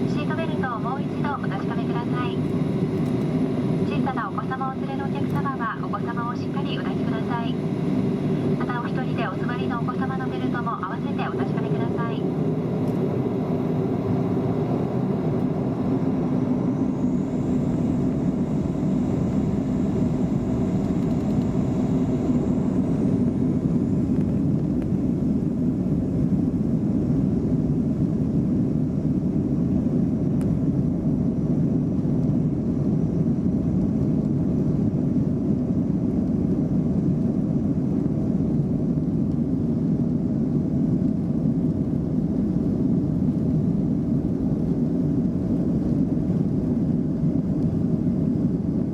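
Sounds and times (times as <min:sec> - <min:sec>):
faint high whine: 0:00.0 - 0:24.5
airliner engine rumble in cabin: 0:00.0 - 0:48.9.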